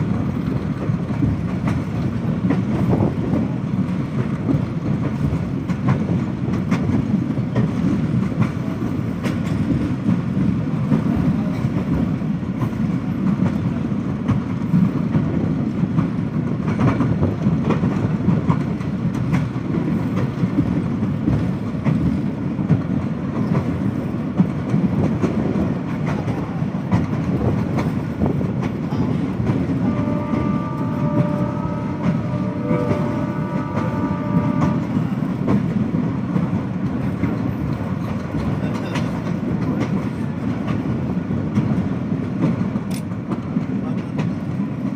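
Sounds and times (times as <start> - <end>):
train rumbling along track: 0.0 - 44.9
wheels clicking over rail joints: 0.0 - 44.9
train horn chord: 29.8 - 35.2.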